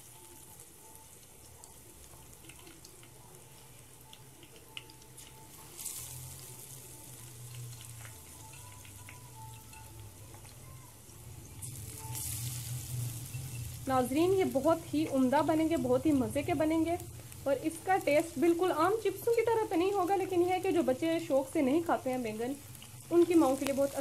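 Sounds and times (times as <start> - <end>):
battered slices frying in oil: 0.0 - 24.0
small crackles: 0.2 - 10.9, 16.7 - 24.0.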